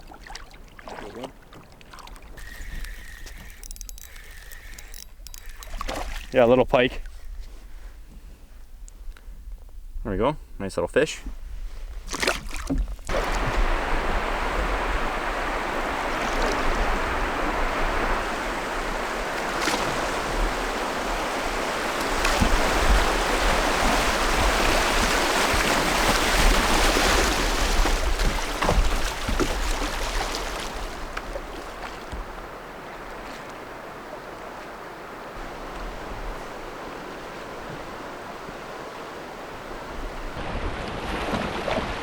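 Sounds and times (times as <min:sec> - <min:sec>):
river water rushing: 0:13.1 - 0:31.8.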